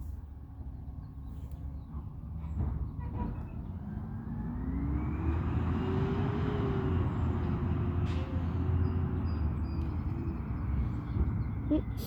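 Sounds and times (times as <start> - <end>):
diesel truck engine revving: 3.8 - 10.9.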